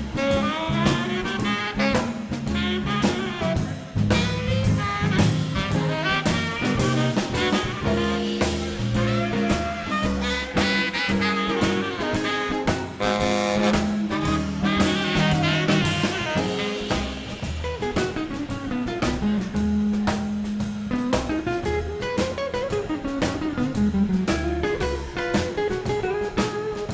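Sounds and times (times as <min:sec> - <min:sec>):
trombone: 0:00.0 - 0:23.7
drum kit: 0:00.0 - 0:26.9
upright bass: 0:00.0 - 0:26.9
trumpet: 0:00.1 - 0:18.3
saxophones: 0:00.2 - 0:17.6.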